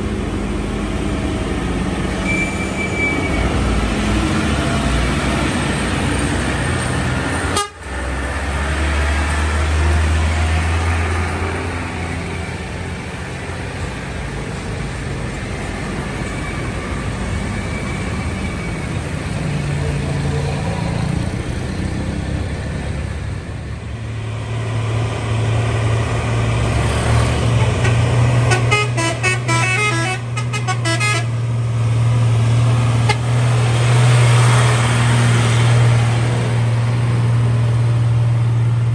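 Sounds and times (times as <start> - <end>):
diesel trucks passing: 0.0 - 38.9
vehicle horn toots: 7.5 - 7.8, 27.8 - 31.3.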